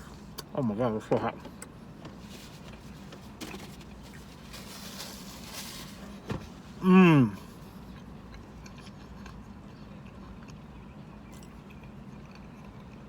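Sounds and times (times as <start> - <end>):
low steady hum: 0.0 - 13.0
faint chewing: 7.4 - 13.0.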